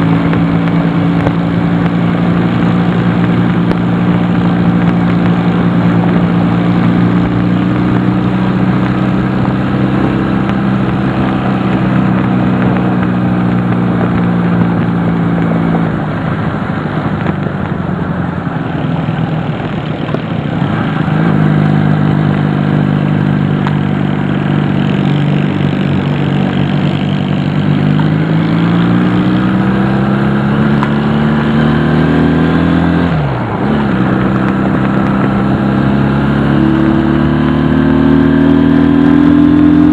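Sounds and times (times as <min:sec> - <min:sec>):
motorcycle engine running: 0:00.0 - 0:39.9
wind rush: 0:00.0 - 0:39.9.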